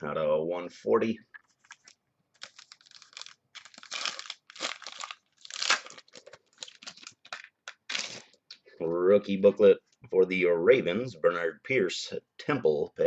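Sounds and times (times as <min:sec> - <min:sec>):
foil wrappers crinkling and tearing: 0:01.6 - 0:08.4.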